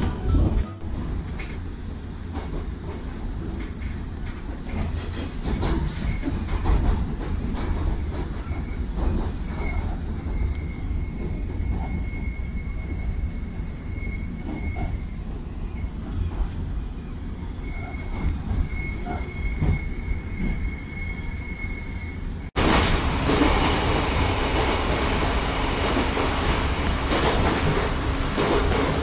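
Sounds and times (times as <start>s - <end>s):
train wheels rumbling on rails: 0.0s - 29.0s
high brake squeal: 8.4s - 16.0s, 17.0s - 22.5s.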